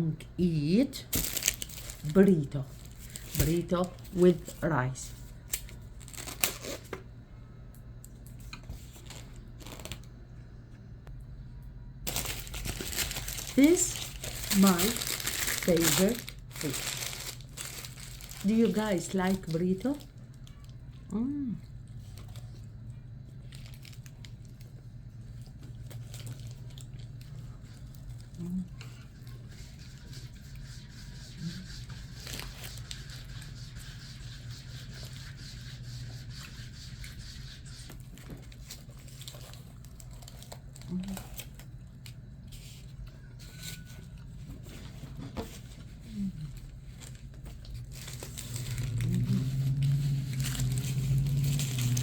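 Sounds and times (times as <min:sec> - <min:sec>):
chewing food: 0:20.0 - 0:30.6
low hum: 0:45.6 - 0:52.0.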